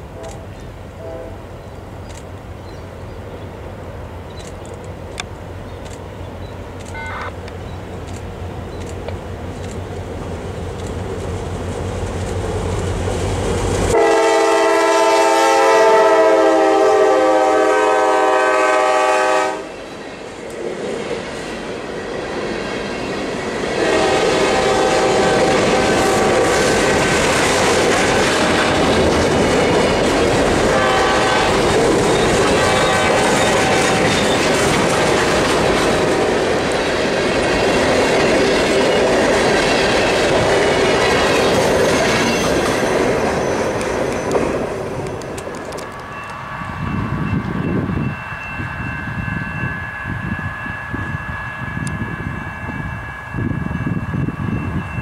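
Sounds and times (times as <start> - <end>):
train air horn: 0.1 - 1.4, 6.9 - 7.3, 13.9 - 19.8, 23.8 - 26.6, 30.6 - 34.2
diesel locomotive rumble: 21.2 - 49.4
freight cars clickety-clack: 25.2 - 46.4
wheel squeal: 41.6 - 44.4.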